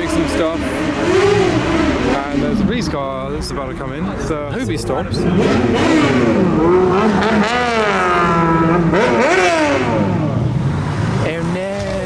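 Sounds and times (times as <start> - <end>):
vehicle engine revving hard: 0.0 - 12.0.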